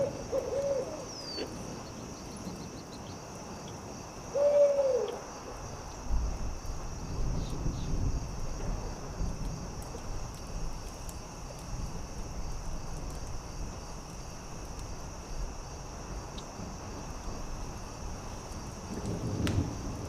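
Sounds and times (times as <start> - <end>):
crickets chirping: 0.0 - 20.0
campfire crackling: 5.2 - 20.0.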